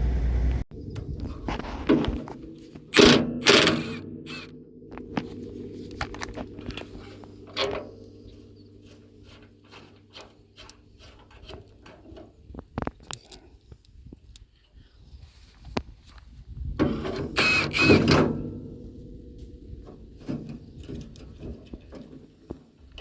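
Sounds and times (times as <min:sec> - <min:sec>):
tractor engine idling: 0:00.0 - 0:12.5
loud metal clanks: 0:01.8 - 0:12.0.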